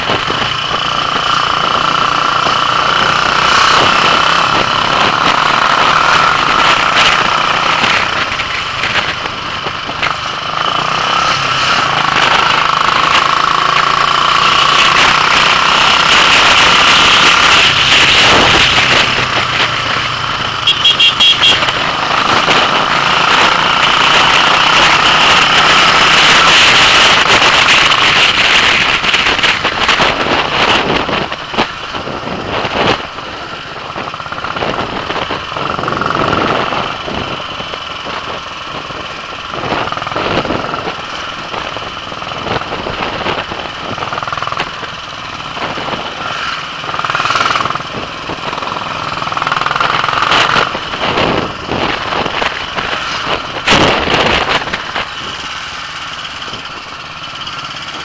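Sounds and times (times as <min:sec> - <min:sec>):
motorcycle engine running: 0:00.0 - 0:58.0
wind noise: 0:00.0 - 0:58.0
horn short beeps: 0:20.6 - 0:21.8.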